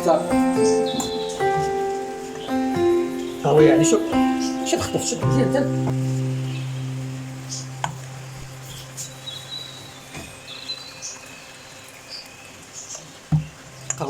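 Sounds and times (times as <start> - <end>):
low steady hum: 0.0 - 11.0
birds chirping and whistling: 0.0 - 14.0.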